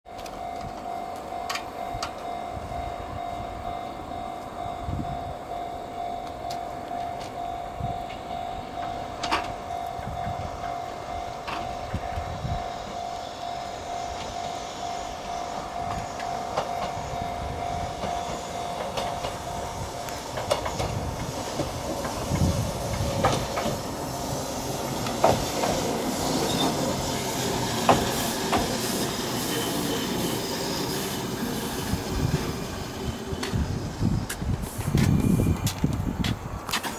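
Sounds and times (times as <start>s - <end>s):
level crossing bell ringing: 0.1s - 20.3s
electric train running: 0.1s - 36.9s
wheels clicking on rails: 5.9s - 13.1s, 14.0s - 36.9s.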